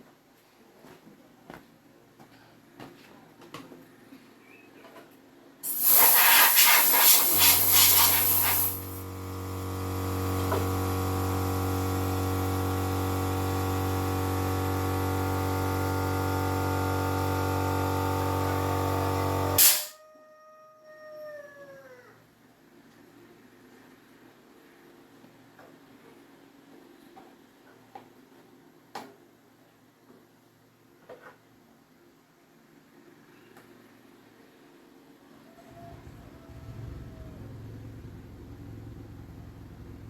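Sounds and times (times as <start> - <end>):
loud hissing rush: 5.6 - 9.0
electric fan motor hum: 5.6 - 19.6
motor spinning down whine: 7.2 - 19.6, 36.0 - 40.0.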